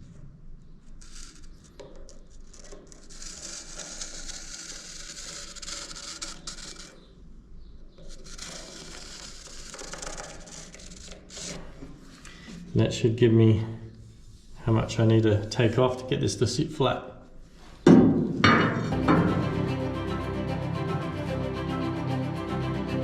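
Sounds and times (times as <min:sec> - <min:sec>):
pen scratching on steel plate: 0:01.0 - 0:07.1, 0:08.0 - 0:12.3.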